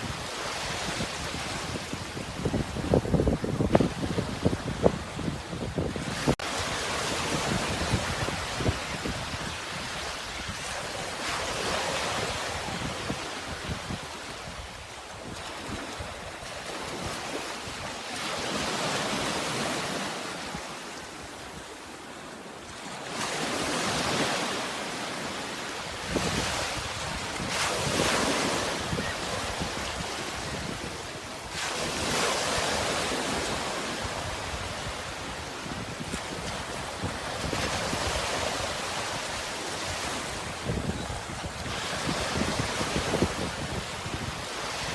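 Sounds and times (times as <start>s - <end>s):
sea waves washing in: 23.0s - 44.9s.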